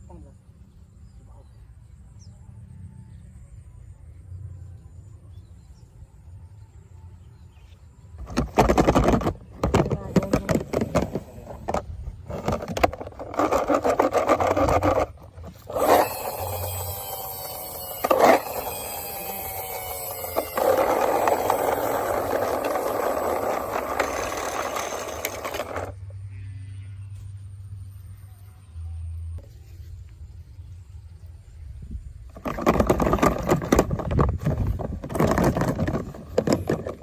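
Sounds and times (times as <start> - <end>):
toy cars scraping on hard surface: 8.2 - 26.0
toy cars clicking: 8.2 - 26.1
whine of spinning toy wheels: 8.2 - 26.2.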